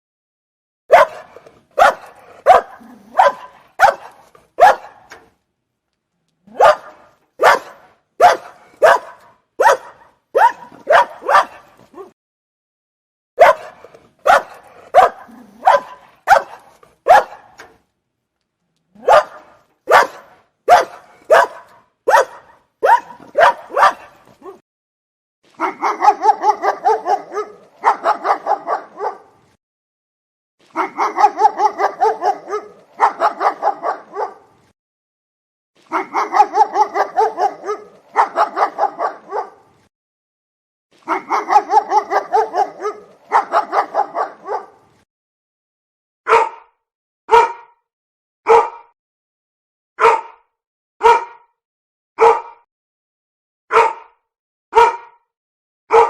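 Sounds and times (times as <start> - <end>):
dogs barking: 0.9 - 5.3, 6.5 - 12.1, 13.4 - 17.7, 19.0 - 24.6, 25.6 - 29.4, 30.8 - 34.6, 35.9 - 39.7, 41.1 - 44.9, 46.3 - 46.7, 47.3 - 47.7, 48.5 - 48.9, 50.0 - 50.4, 51.0 - 51.4, 52.2 - 52.6, 53.7 - 54.1, 54.7 - 55.2.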